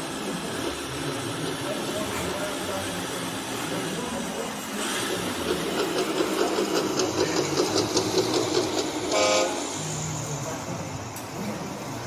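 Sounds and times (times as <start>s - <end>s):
rhythmic mechanical clattering: 0.0s - 11.4s
short horn toot: 9.1s - 9.6s.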